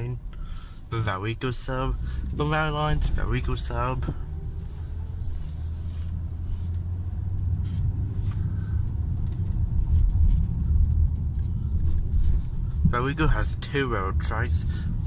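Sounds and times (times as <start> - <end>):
road and engine rumble in car: 0.0 - 15.0.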